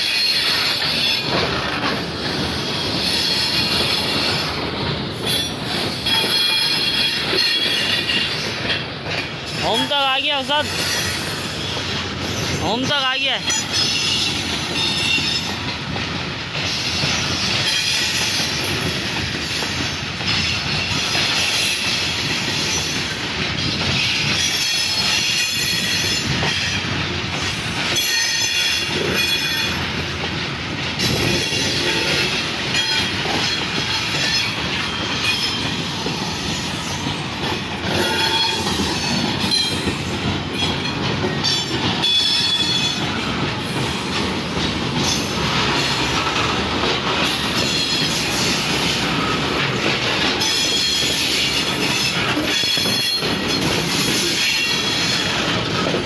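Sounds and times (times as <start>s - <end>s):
train wheels rumbling and clattering: 0.0s - 56.0s.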